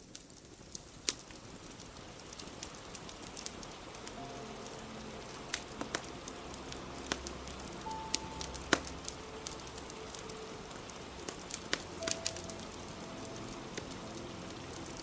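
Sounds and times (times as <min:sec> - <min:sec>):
fireplace crackling and popping: 0:00.0 - 0:15.0
steady rain: 0:00.0 - 0:15.0
soft held musical notes: 0:03.7 - 0:15.0.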